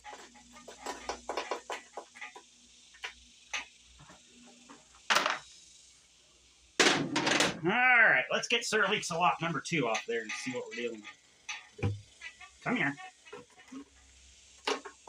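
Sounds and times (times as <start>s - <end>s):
loud knock: 11.8s - 12.0s.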